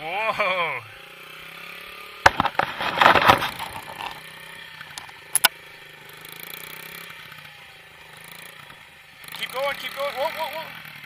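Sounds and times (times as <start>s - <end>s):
small motorcycle engine running: 0.0s - 11.0s
knocks and rattles: 2.2s - 4.2s
sharp clicks: 4.9s - 5.5s.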